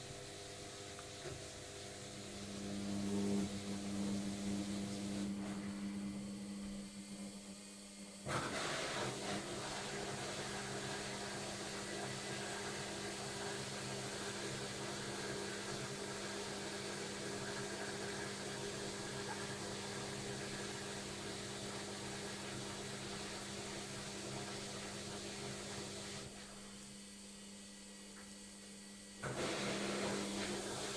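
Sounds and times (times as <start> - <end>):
washing machine spinning: 8.3 - 26.7, 29.2 - 30.9.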